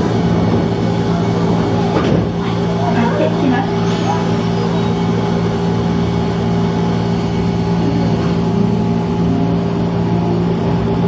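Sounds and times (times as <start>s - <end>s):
constant hum: 0.0s - 11.0s
train running rumble: 0.0s - 11.0s.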